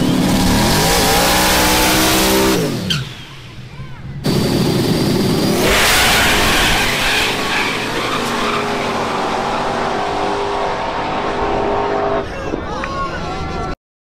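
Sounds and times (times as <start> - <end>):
car engine at high revs: 0.0 - 3.5, 4.2 - 12.2
loud rushing noise: 4.2 - 12.4.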